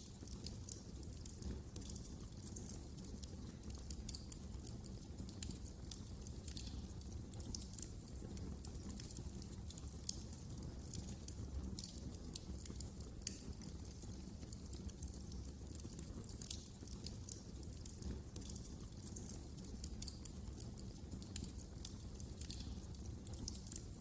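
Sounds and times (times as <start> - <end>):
low rumble of burning logs: 0.0 - 24.0
wood fire crackling and popping: 0.0 - 24.0.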